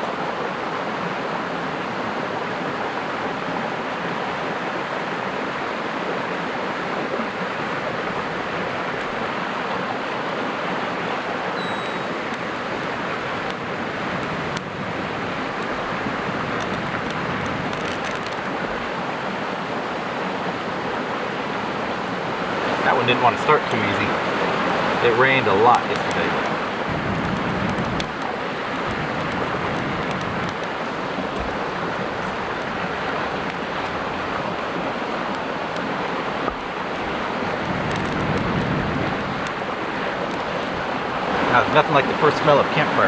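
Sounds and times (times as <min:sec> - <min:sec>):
creek rushing: 0:00.0 - 0:43.0
faint ticks: 0:37.6 - 0:39.6.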